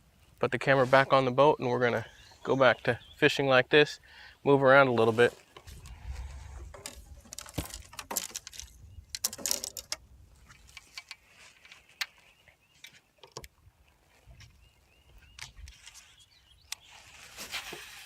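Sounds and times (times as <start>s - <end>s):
fishing gear clicks and rattles: 5.4s - 12.2s, 12.8s - 13.6s, 15.4s - 16.9s.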